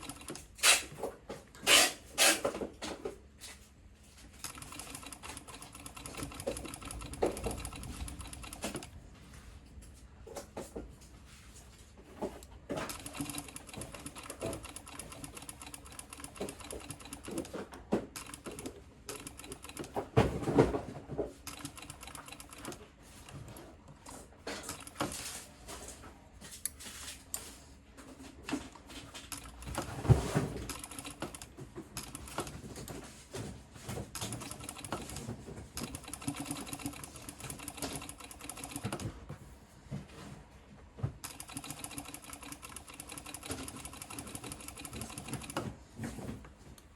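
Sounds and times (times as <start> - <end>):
sewing machine stitching: 1.6 - 2.5, 4.4 - 9.0, 12.7 - 20.1, 29.1 - 32.9, 34.1 - 39.1, 41.2 - 45.8.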